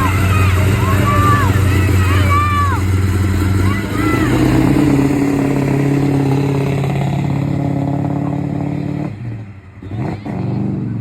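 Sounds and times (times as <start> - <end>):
car engine running: 0.0 - 8.8.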